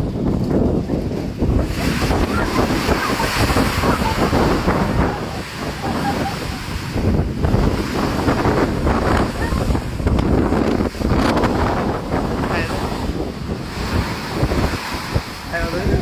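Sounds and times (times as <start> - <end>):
loud steady rushing noise: 0.0 - 16.0
wind buffeting microphone: 0.0 - 16.0.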